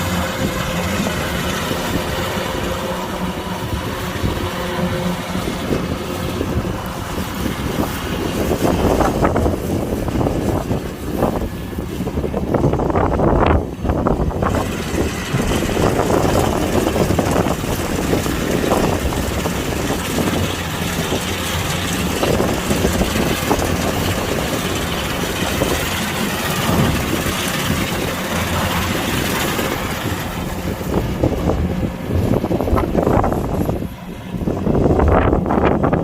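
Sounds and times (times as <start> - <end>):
combine harvester running: 0.0 - 36.0.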